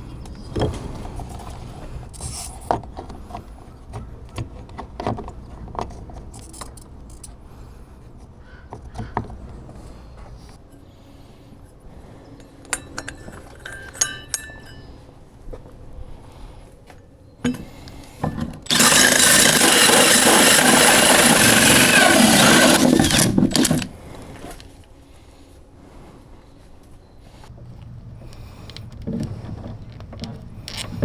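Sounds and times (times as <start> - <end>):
light metallic clinks: 12.4 - 15.2
power tool cutting: 18.7 - 23.9.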